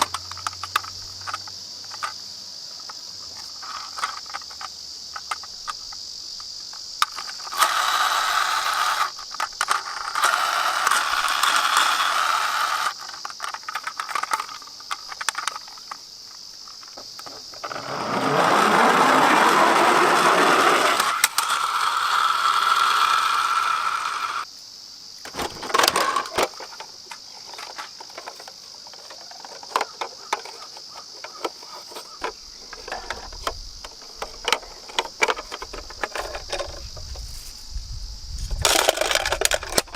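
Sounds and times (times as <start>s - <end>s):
toy cars clicking and clattering: 0.0s - 2.2s, 2.8s - 16.0s, 16.6s - 24.5s, 25.2s - 36.9s, 38.5s - 39.9s
toy cars rolling down track: 7.0s - 15.9s, 16.9s - 24.5s, 25.3s - 26.8s, 27.4s - 36.8s, 38.5s - 39.9s.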